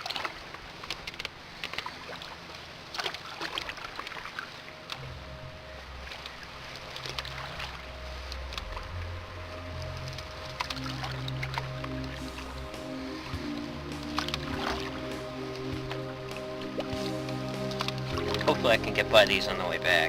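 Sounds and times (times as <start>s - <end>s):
water splashing: 0.0s - 20.0s
background music low notes: 4.6s - 20.0s.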